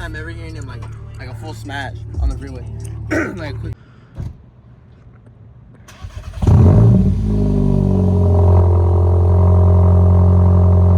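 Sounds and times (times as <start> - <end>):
car engine exhaust drone: 6.3 - 10.9.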